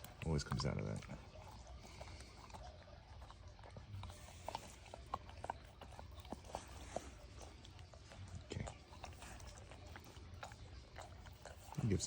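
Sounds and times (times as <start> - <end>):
dog chewing food: 0.0 - 12.0.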